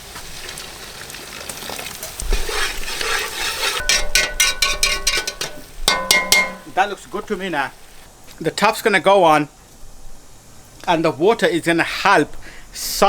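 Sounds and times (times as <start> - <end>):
food sizzling in a pan: 0.0 - 8.1
metal spoon scraping a pan: 2.0 - 6.8.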